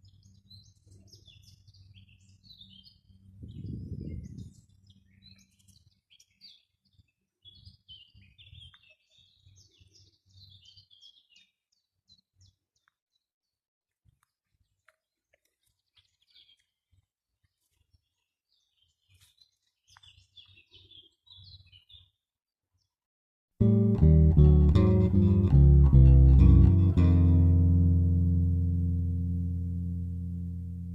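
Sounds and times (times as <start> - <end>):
songbird chirping and trilling: 0.0 - 13.6, 14.2 - 23.0, 23.6 - 30.9
faint low rumble: 23.6 - 30.9.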